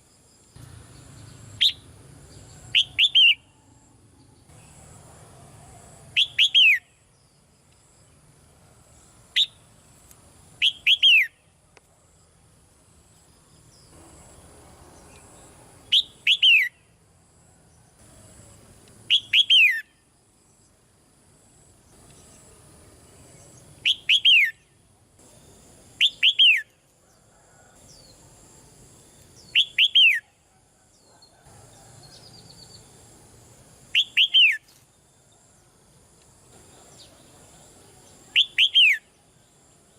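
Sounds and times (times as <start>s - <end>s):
bird whistled downward notes: 26.0s - 26.7s, 29.5s - 30.3s, 34.0s - 34.7s, 38.4s - 39.0s.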